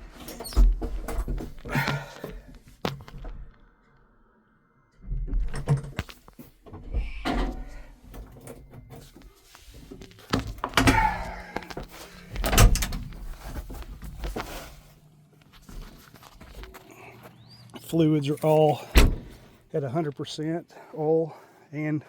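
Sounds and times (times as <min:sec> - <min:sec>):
knocks and clunks: 0:00.0 - 0:03.5, 0:05.0 - 0:14.5, 0:18.8 - 0:19.6.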